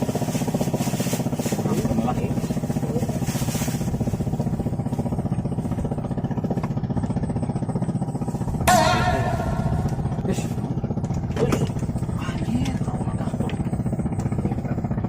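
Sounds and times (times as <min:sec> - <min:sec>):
small engine running: 0:00.0 - 0:08.7
loud high-pitched sound: 0:08.7 - 0:10.9.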